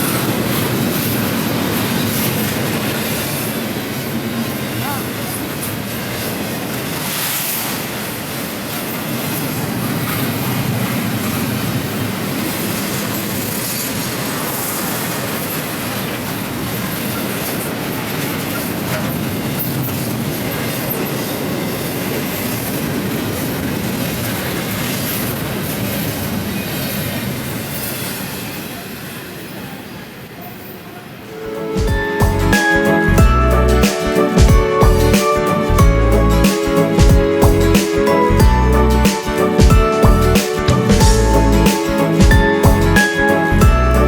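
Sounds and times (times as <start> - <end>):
train wheels rumbling on rail: 0.0 - 31.2.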